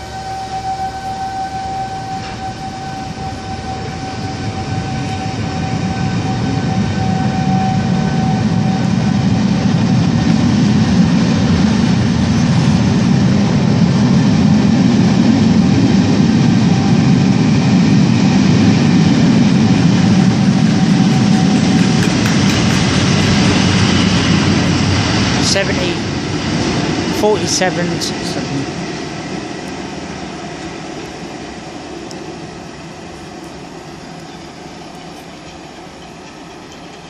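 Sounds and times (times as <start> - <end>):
steady high tone: 0.0 - 9.6, 18.2 - 28.8
steam train running: 0.0 - 37.0.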